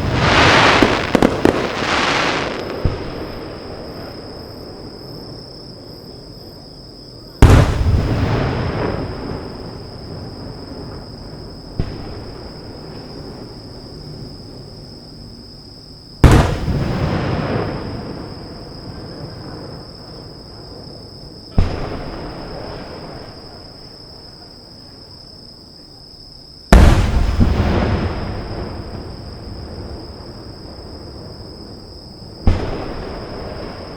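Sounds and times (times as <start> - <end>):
firework shells booming: 0.0 - 4.6, 7.4 - 14.4, 16.2 - 18.8, 21.5 - 23.6, 26.7 - 31.6, 32.3 - 33.9.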